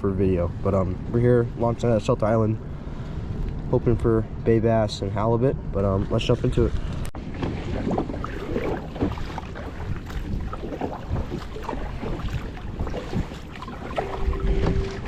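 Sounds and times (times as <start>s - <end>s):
wind rumbling on microphone: 0.0s - 15.0s
water splashing against kayak: 5.9s - 15.0s.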